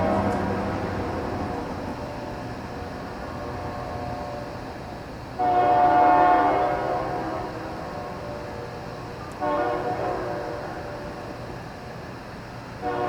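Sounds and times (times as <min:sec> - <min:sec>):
locomotive air horn blowing: 0:00.0 - 0:02.0, 0:05.3 - 0:08.5, 0:09.4 - 0:10.9, 0:12.8 - 0:13.0.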